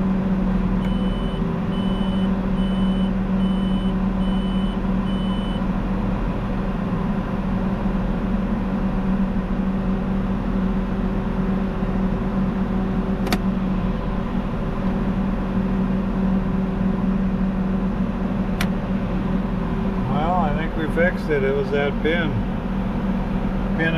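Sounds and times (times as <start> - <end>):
engine idling: 0.0 - 23.9
sharp clicks: 13.2 - 13.4.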